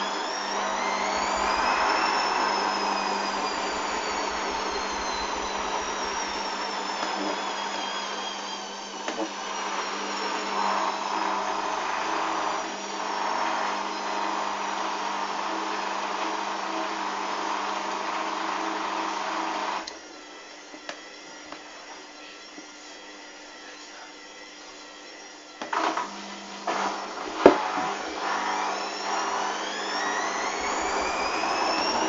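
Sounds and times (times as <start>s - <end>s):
steady hum: 0.0s - 12.7s, 30.0s - 32.0s
high motor whine: 0.0s - 32.0s
washing machine motor running: 0.0s - 32.0s.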